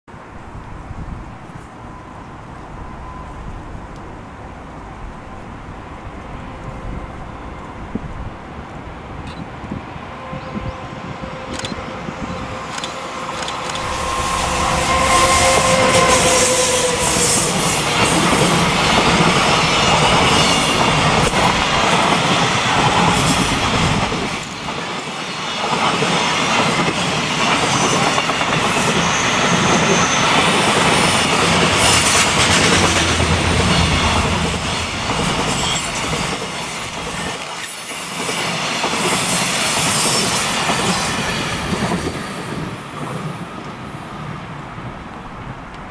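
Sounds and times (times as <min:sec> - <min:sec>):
locomotive steady tone: 0:00.1 - 0:25.9
freight wagons rumbling on rails: 0:00.1 - 0:45.9
high wheel squeals: 0:10.3 - 0:21.1, 0:27.7 - 0:32.4.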